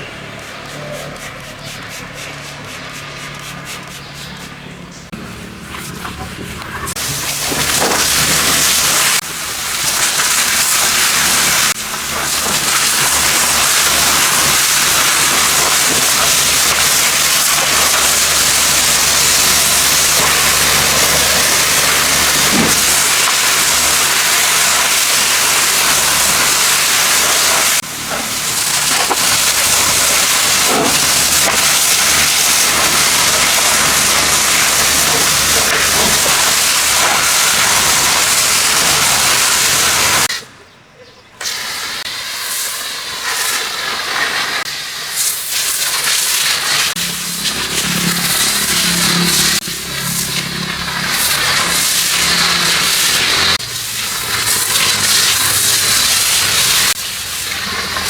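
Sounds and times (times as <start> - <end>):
high-pressure spray gun hissing: 0.0 - 40.5, 41.4 - 58.0.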